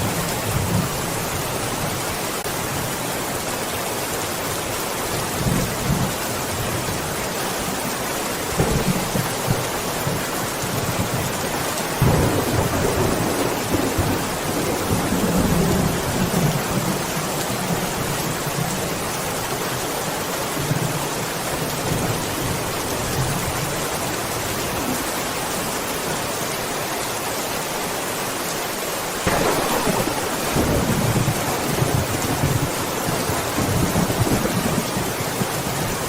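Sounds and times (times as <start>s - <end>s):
heavy rain: 0.0s - 36.0s
thunder rumbling: 8.5s - 11.3s, 12.0s - 17.8s, 29.2s - 36.0s.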